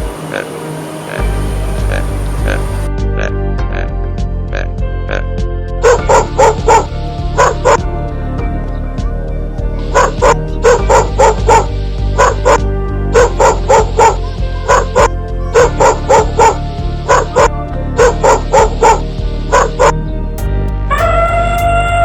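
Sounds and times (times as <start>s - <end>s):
background music: 0.0s - 22.0s
dog barking: 5.8s - 7.8s, 9.8s - 12.6s, 13.2s - 20.0s.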